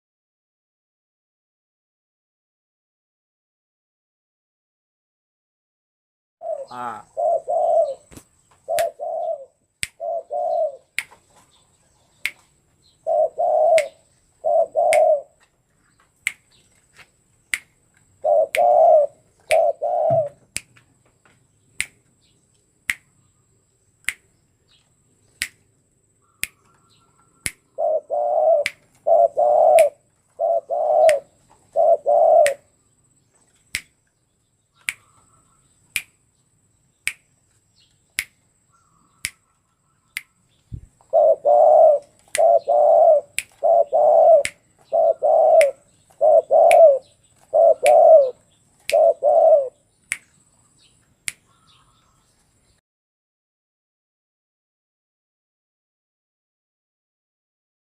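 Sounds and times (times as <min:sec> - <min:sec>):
dove cooing: 0:06.4 - 0:11.6, 0:13.0 - 0:15.4, 0:18.2 - 0:20.5, 0:26.3 - 0:32.7, 0:40.8 - 0:49.8
sharp ticks: 0:44.4 - 0:44.6, 0:45.6 - 0:45.8, 0:46.6 - 0:47.0.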